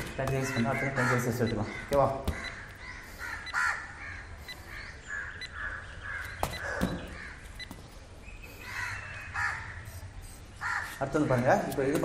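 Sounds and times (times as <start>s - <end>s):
birds calling: 0.0s - 12.0s.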